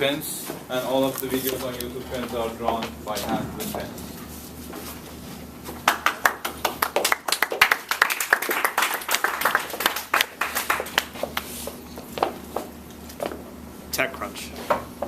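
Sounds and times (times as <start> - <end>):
people clapping: 5.7 - 11.5.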